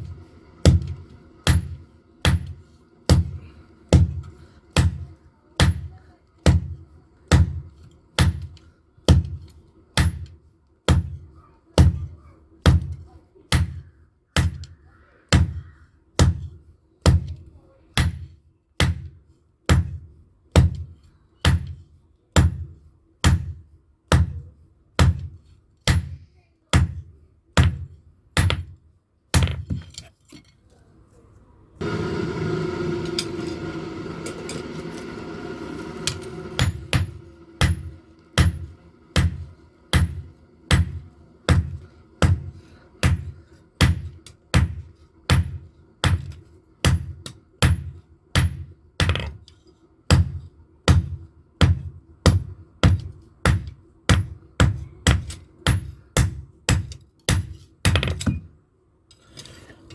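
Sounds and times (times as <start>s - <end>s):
hammer striking iron on anvil: 0.6s - 9.4s, 10.0s - 12.1s, 18.0s - 21.8s, 22.4s - 26.2s, 26.8s - 28.8s, 36.0s - 49.4s, 50.1s - 58.5s.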